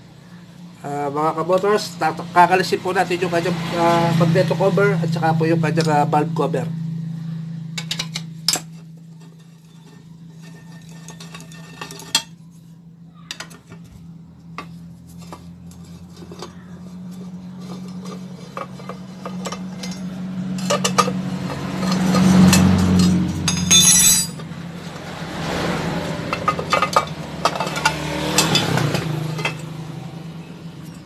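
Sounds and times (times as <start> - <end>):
steady low hum: 0.0 - 31.0
metal tools clinking on engine: 7.7 - 24.6, 25.3 - 31.0.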